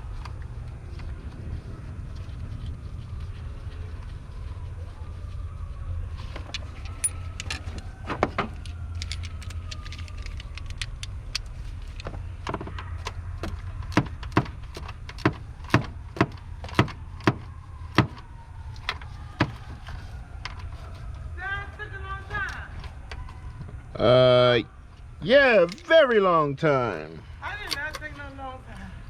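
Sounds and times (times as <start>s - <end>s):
metallic clinks of hand tools: 6.9s - 7.8s, 25.7s - 26.0s.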